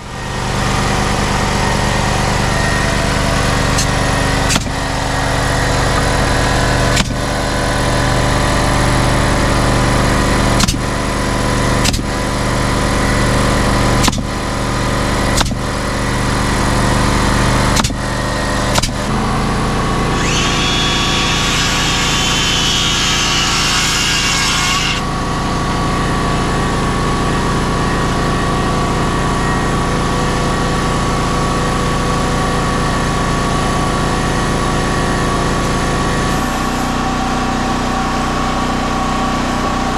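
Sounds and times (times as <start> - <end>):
engine running: 0.0 - 39.9
power tool whirring: 17.4 - 25.8, 35.7 - 37.2.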